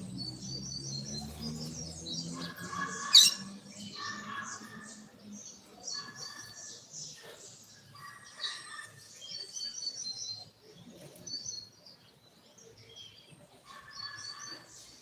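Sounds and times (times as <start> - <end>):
bird singing high chirps: 0.0 - 5.0.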